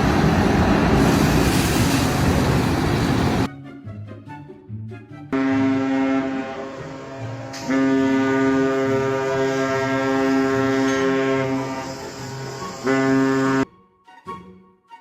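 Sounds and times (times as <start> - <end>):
loud horn-like blast: 5.4 - 13.6.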